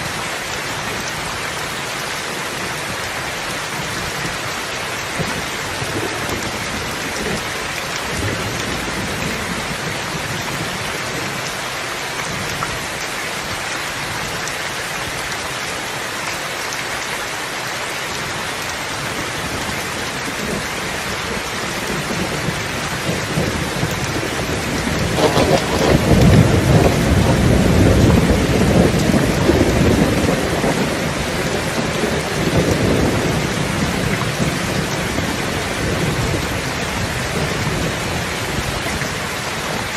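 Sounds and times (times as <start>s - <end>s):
steady rain: 0.0s - 39.9s
rolling thunder: 21.3s - 38.8s.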